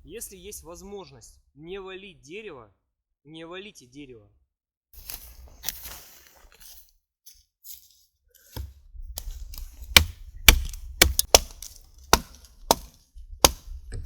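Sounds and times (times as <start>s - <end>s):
axe chopping wood: 8.6s - 14.0s.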